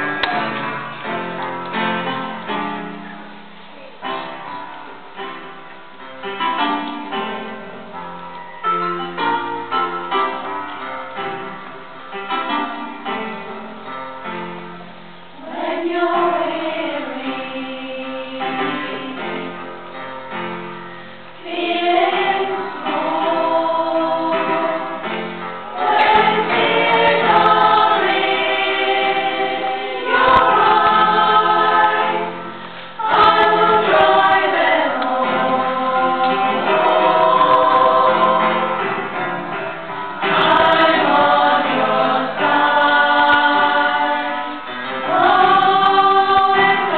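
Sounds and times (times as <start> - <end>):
choir singing: 15.4 - 19.9, 21.4 - 46.9.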